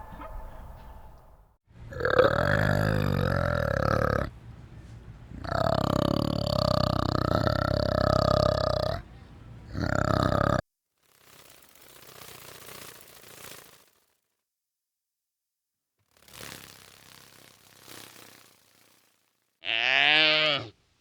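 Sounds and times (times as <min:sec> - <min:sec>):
animal calling low and long: 0:01.9 - 0:04.4, 0:05.3 - 0:09.1, 0:19.6 - 0:20.8.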